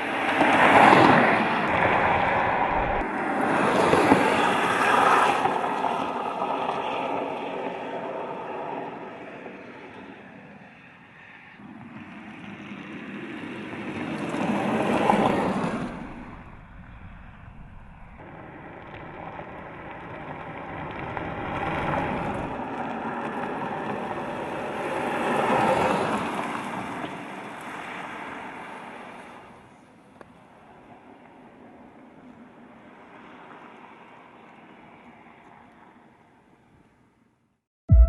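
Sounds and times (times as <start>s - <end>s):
car driving past: 0.4s - 5.5s.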